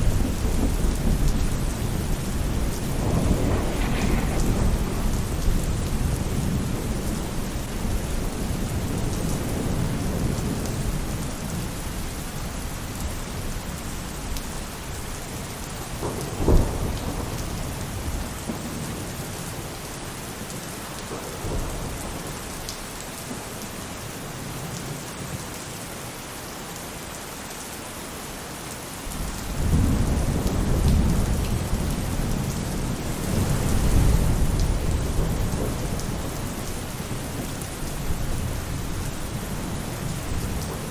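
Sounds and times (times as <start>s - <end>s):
thunder rumbling: 0.0s - 12.5s, 15.6s - 19.7s, 29.1s - 40.9s
rain falling on a roof: 0.0s - 40.9s
sharp thunder crack: 0.1s - 7.2s.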